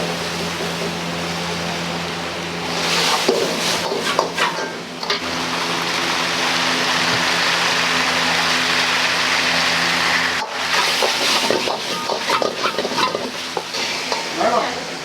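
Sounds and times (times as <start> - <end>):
extractor fan hum: 0.0 - 15.0
food sizzling: 0.2 - 15.0
ladle clanking against wok: 3.0 - 5.2, 10.4 - 14.5.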